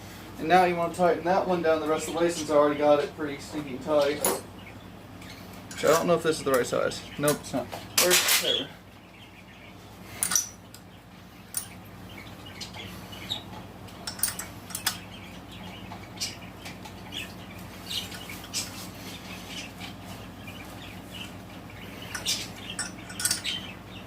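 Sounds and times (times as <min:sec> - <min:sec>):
steady low hum: 0:00.0 - 0:24.0
metal hand tools clinking: 0:22.2 - 0:23.6.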